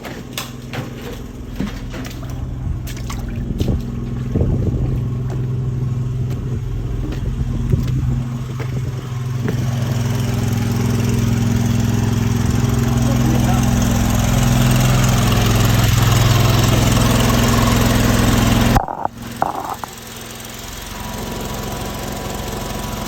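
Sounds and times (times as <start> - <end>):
knocks and clatters: 0.0 - 9.8, 18.8 - 19.9
water jetter engine running: 0.0 - 23.0.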